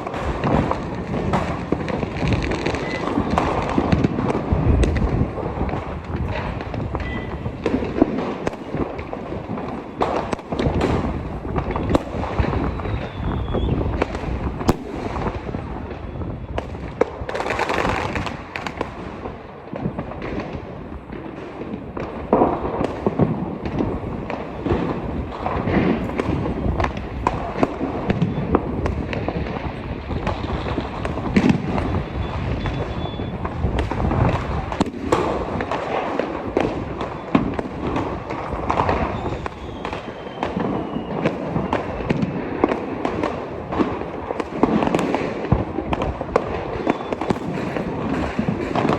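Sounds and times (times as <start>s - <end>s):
fireworks cracking and banging: 0.0s - 48.9s.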